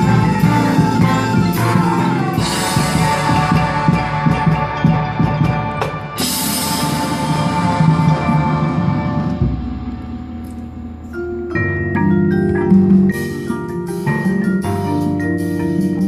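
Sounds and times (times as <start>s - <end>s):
marching band playing: 0.0s - 16.0s
cymbal crash: 1.6s - 11.4s.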